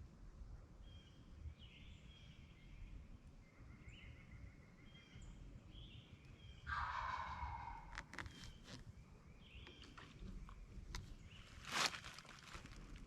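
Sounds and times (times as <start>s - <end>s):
songbirds chirping: 0.1s - 13.0s
turkey gobbling: 6.7s - 8.0s.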